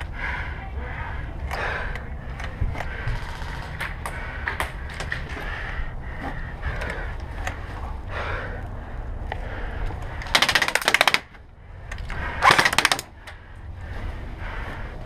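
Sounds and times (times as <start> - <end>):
airsoft gun firing bursts: 10.3 - 11.3, 12.4 - 13.1.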